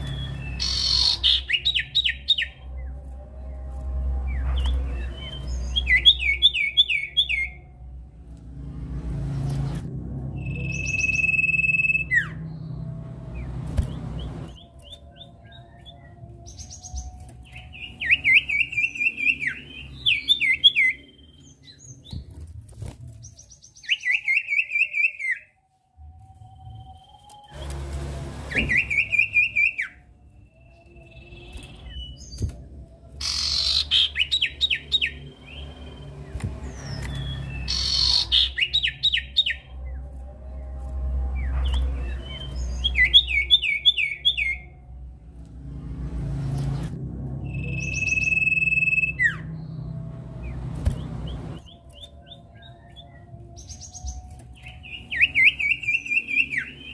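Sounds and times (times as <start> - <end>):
bird rapid repeated chirps: 0.0 - 2.6, 33.2 - 39.7
low rumble: 0.0 - 23.5, 25.9 - 55.3.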